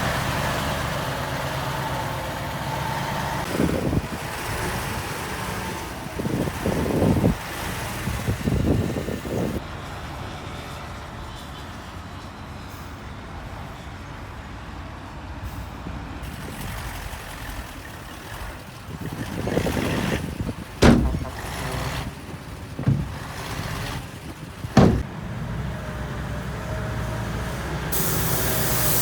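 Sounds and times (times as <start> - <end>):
diesel earthmoving machinery running: 0.0 - 14.3, 15.4 - 29.0.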